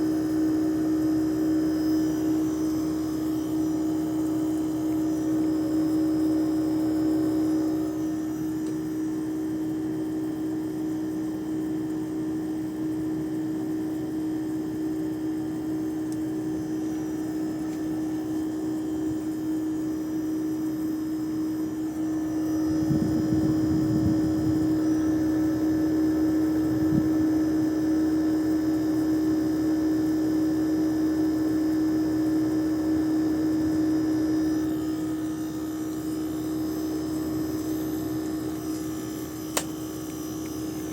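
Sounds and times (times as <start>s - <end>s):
air conditioner unit humming: 0.0s - 40.9s.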